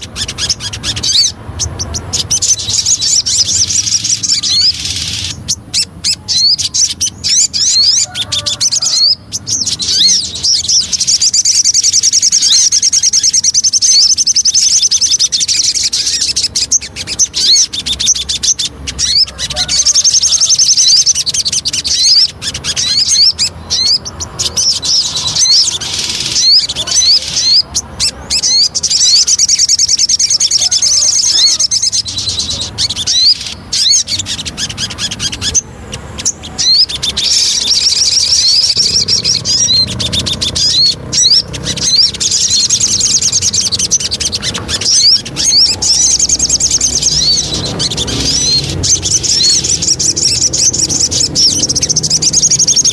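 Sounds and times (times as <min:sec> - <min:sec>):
songbird singing trills: 0:00.0 - 0:52.9.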